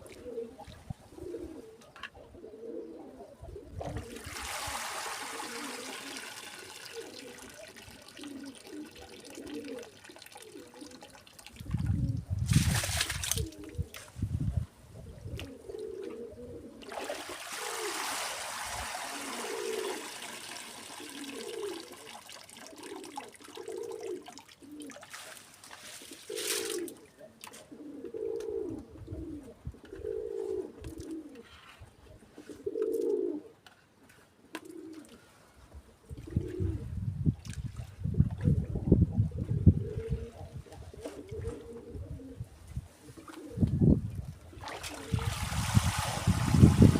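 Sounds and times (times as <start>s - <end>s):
pigeons cooing: 0.0s - 12.4s, 13.4s - 14.0s, 14.9s - 25.1s, 26.1s - 33.6s, 34.6s - 35.3s, 36.1s - 37.0s, 38.4s - 45.2s
running water: 4.0s - 13.7s, 16.8s - 27.0s, 44.5s - 46.9s.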